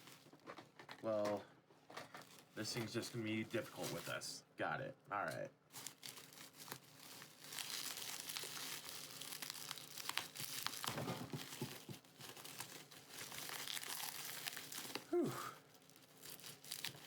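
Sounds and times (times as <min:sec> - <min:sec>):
packaging crinkling and tearing: 0:00.0 - 0:01.3, 0:02.0 - 0:04.2, 0:05.7 - 0:17.0.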